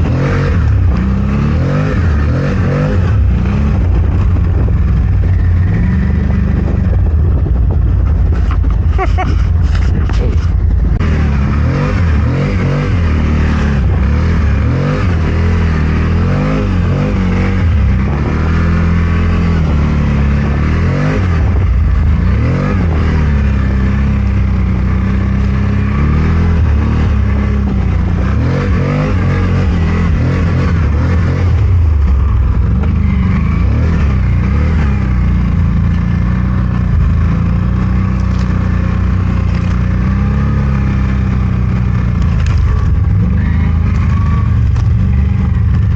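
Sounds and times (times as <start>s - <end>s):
engine revving under load: 0.0s - 45.9s.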